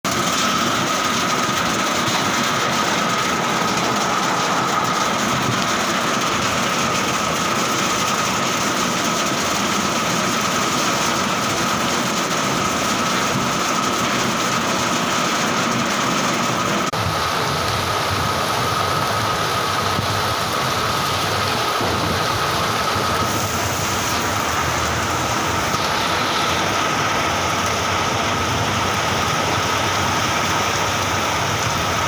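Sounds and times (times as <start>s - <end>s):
heavy rain: 0.1s - 32.0s
high-pitched whine: 17.1s - 31.0s.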